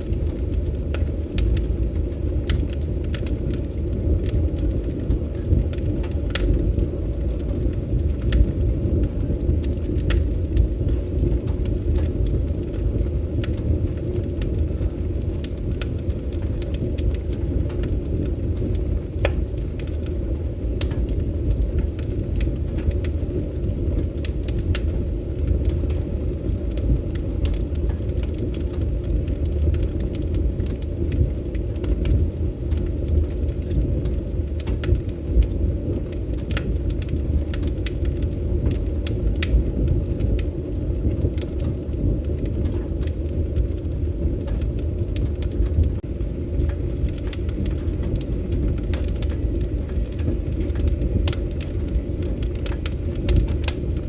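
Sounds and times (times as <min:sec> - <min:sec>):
fire crackles and pops: 0:00.0 - 0:54.0
wood fire roaring: 0:00.0 - 0:54.0.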